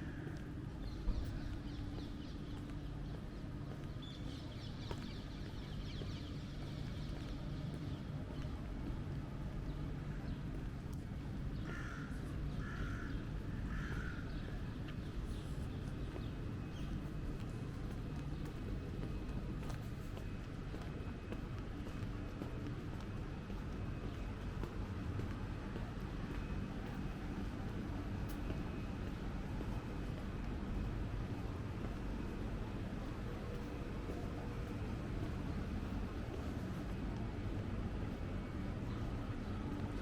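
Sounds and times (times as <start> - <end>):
low street rumble: 0.0 - 40.0
crow cawing: 11.7 - 13.1, 13.7 - 14.2.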